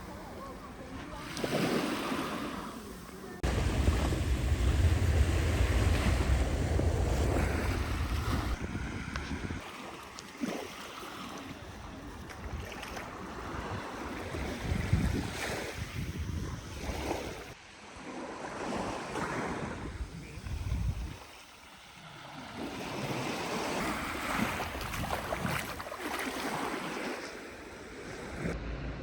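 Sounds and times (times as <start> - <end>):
waves breaking on a beach: 0.0 - 28.6
wind buffeting microphone: 3.4 - 9.8, 11.6 - 17.6, 19.2 - 21.4, 23.7 - 26.0.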